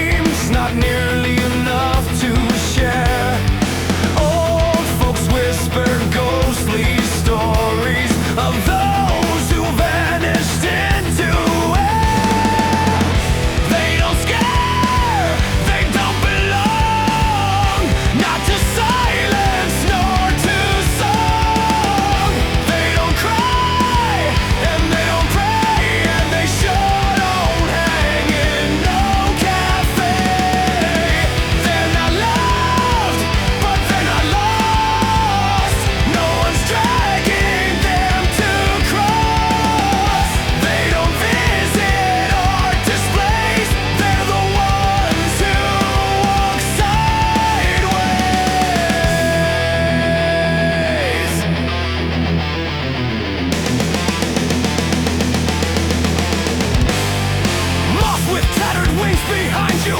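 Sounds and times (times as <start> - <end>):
heavy rock band music: 0.0 - 59.9.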